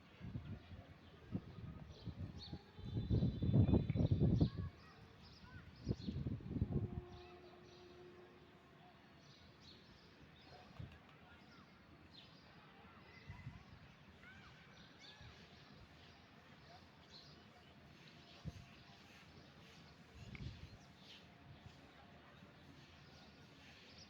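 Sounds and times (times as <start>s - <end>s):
faint background noise: 0.0s - 24.0s.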